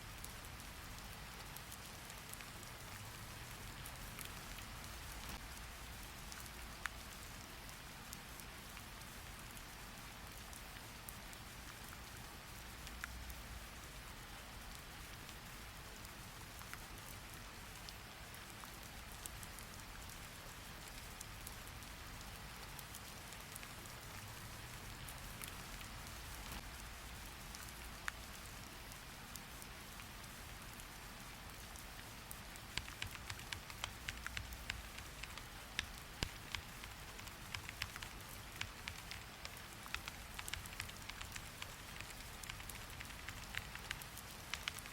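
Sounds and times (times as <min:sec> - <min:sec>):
steady rain falling: 0:00.0 - 0:44.9
keyboard typing: 0:32.8 - 0:39.2.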